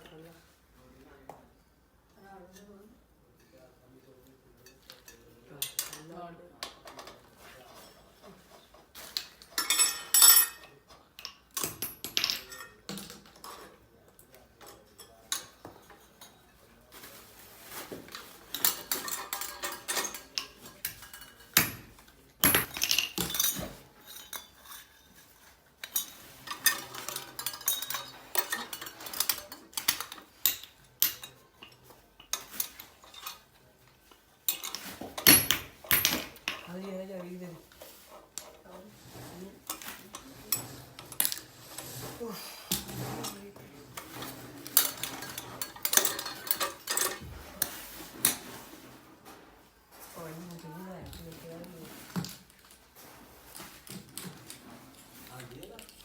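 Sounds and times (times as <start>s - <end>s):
metal pieces clinking and clanking: 9.2s - 13.7s, 18.1s - 33.5s, 42.7s - 48.4s.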